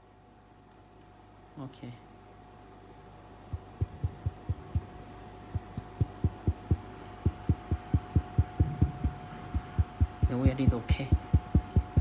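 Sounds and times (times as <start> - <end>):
ultrasonic welding machine hum: 2.5 - 12.0
short low thumps: 3.5 - 12.0.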